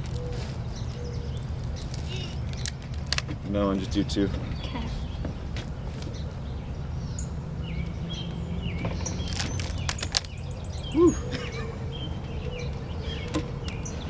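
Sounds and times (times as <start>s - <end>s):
rubber bands snapping: 0.0s - 3.5s, 8.8s - 10.4s
low background rumble: 0.0s - 14.0s
small birds chirping: 0.0s - 14.0s.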